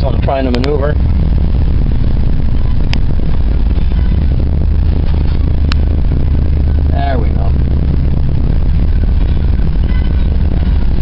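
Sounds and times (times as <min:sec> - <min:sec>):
car engine running at low speed: 0:00.0 - 0:11.0.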